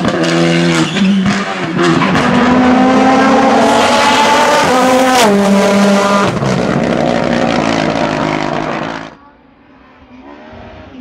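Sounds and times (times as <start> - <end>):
race car engine accelerating: 0.0 - 9.2.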